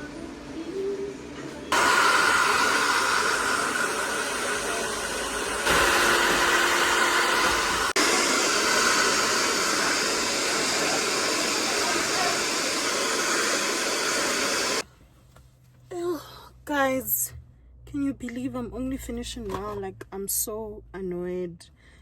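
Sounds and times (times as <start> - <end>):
hair dryer blowing: 1.7 - 14.8.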